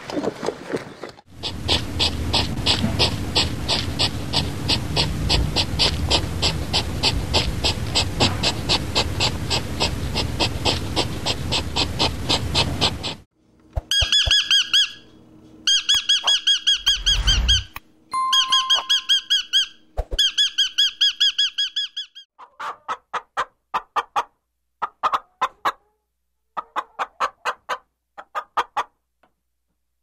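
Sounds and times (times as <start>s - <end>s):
animal high squeaky calls: 15.7s - 17.8s, 18.4s - 22.3s
animal high chirps: 15.7s - 22.2s
low rumble: 16.8s - 17.8s.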